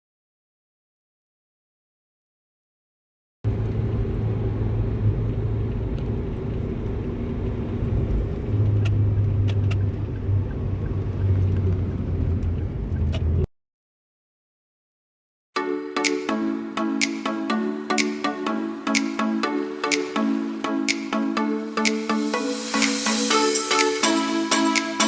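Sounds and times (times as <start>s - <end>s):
car road and engine rumble: 3.5s - 13.5s.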